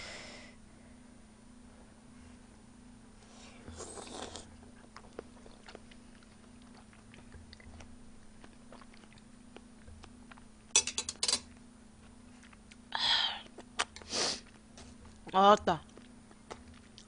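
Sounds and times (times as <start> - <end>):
quiet chewing: 3.4 - 10.5, 11.5 - 17.0
wet slurping bite: 3.7 - 9.3.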